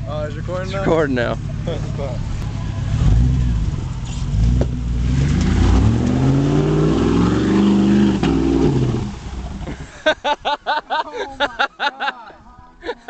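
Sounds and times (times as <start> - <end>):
pickup engine revving hard: 2.8 - 9.8.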